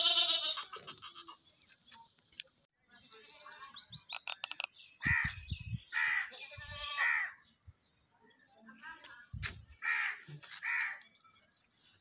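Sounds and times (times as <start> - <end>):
bird high chirps: 2.0 - 6.6
bird harsh calls: 3.6 - 7.6.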